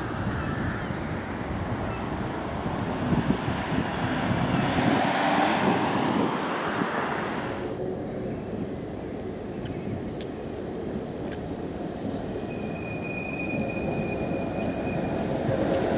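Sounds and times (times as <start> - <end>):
vehicle passing close by: 1.6 - 7.6.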